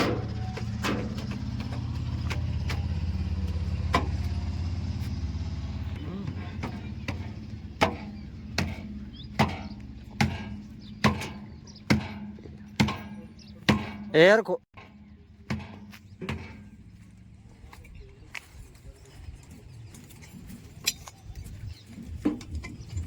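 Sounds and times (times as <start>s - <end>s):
sharp knocks: 0.0s - 5.3s, 6.2s - 14.2s, 14.8s - 16.8s
heavy machine engine running: 0.0s - 14.1s.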